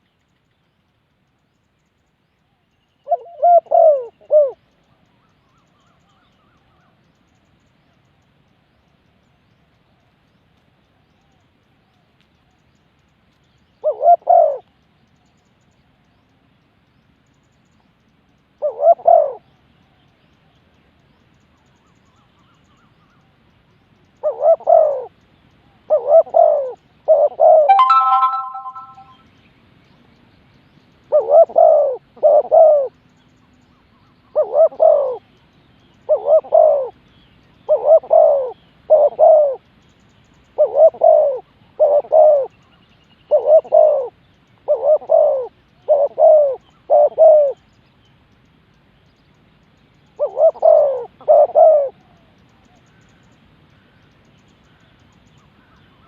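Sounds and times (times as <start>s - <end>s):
dove cooing: 3.1s - 4.6s, 13.8s - 14.7s, 18.6s - 19.4s, 24.2s - 25.1s, 25.9s - 27.9s, 31.1s - 32.9s, 34.4s - 35.2s, 36.1s - 37.0s, 37.7s - 39.6s, 40.6s - 42.5s, 43.3s - 44.1s, 44.7s - 47.6s, 50.2s - 52.2s
clear ringing note: 27.7s - 29.2s.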